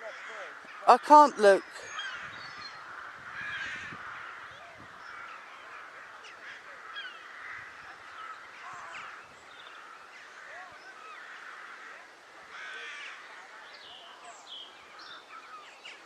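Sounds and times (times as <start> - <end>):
crows cawing: 0.0 - 1.0, 1.8 - 13.4.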